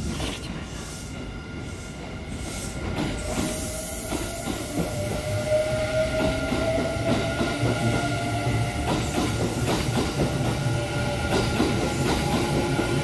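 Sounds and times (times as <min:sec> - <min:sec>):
electric train passing: 0:00.6 - 0:13.0.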